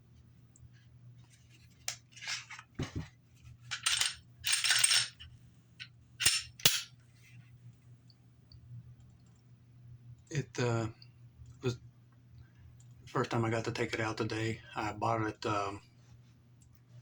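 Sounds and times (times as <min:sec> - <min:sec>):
pistol clicks and knocks: 0:06.2 - 0:06.9
pistol slide scraping: 0:06.2 - 0:06.9.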